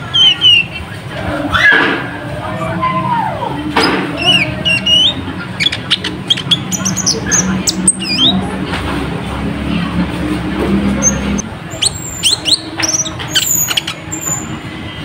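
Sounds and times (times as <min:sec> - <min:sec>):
sunbird chirping and whistling: 0:00.0 - 0:00.8, 0:04.2 - 0:08.4, 0:11.0 - 0:14.6.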